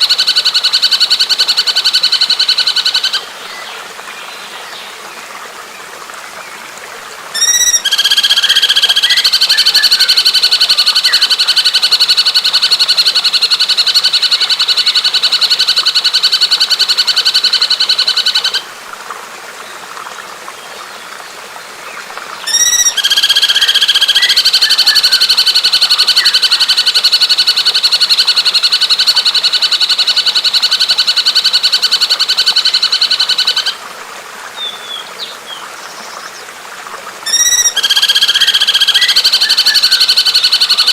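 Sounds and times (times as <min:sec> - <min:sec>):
running water hiss: 0:00.0 - 0:40.9
bird trilling: 0:07.4 - 0:11.8, 0:22.5 - 0:26.9, 0:37.3 - 0:40.9.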